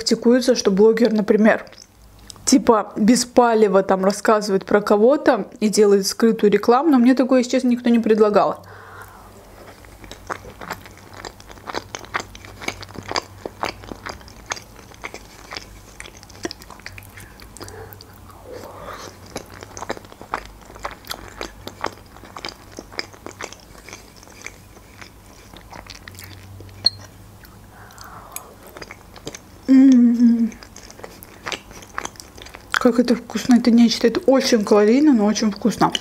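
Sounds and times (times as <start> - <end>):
chewing with wet mouth clicks: 0.6 - 2.4, 8.5 - 34.3.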